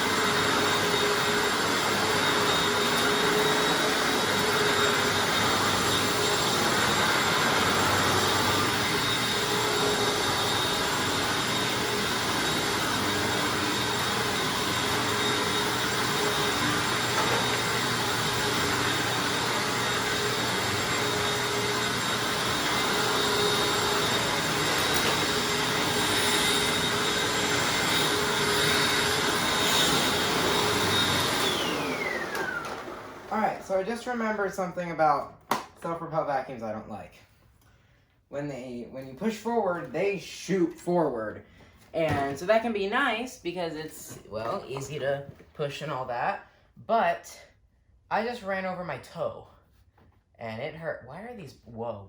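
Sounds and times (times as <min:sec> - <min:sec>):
vacuum cleaner running: 0:00.0 - 0:37.0, 0:42.0 - 0:46.3.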